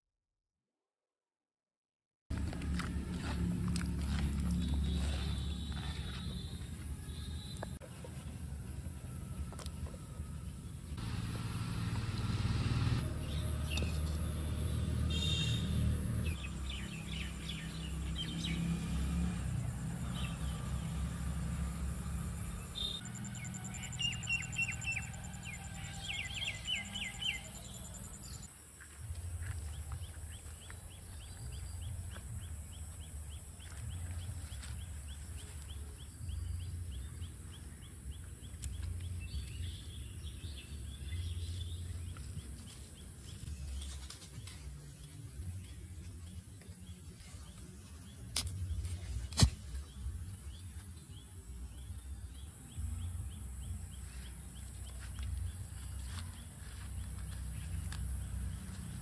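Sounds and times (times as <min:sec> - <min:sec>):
birds chirping: 0:12.3 - 0:59.0.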